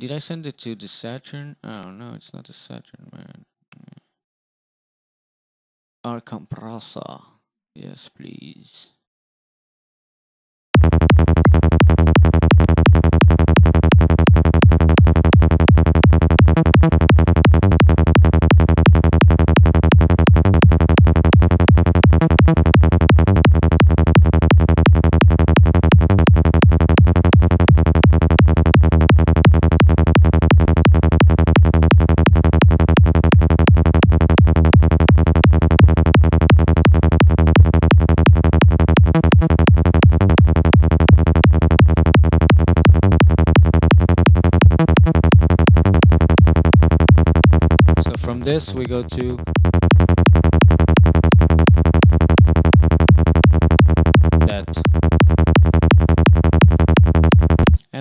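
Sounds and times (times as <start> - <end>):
kick drum: 10.8 - 48.0, 49.5 - 57.8
distorted synth bass pulsing: 10.8 - 57.9.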